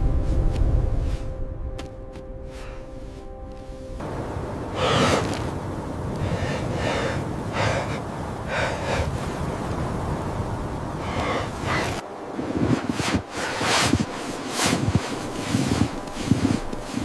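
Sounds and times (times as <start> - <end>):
wind noise: 0.0 - 17.0
heavy gasping breaths: 4.8 - 5.5, 6.2 - 9.3, 11.0 - 12.0.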